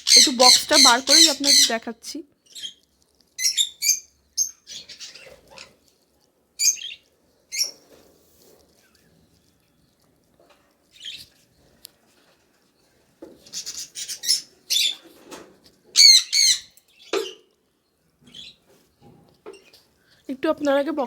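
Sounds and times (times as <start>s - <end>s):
lovebirds chirping and squawking: 0.0s - 6.0s, 6.6s - 8.0s, 10.8s - 11.7s, 13.4s - 17.6s, 18.2s - 18.9s, 19.5s - 19.9s
rustling: 4.8s - 14.2s.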